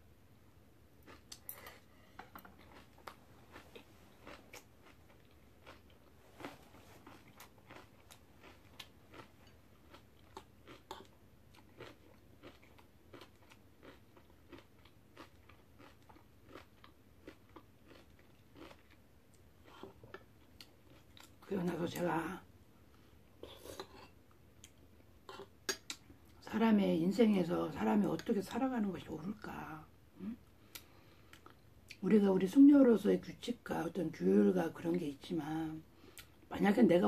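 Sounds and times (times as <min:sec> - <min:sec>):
chewing and mouth clicks: 0:02.5 - 0:21.4.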